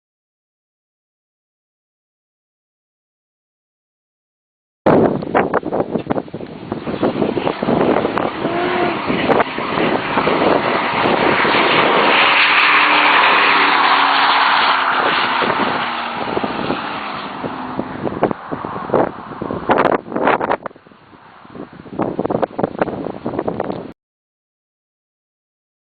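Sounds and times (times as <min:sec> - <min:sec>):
wind buffeting microphone: 0:04.9 - 0:23.9
truck engine accelerating: 0:06.5 - 0:20.4.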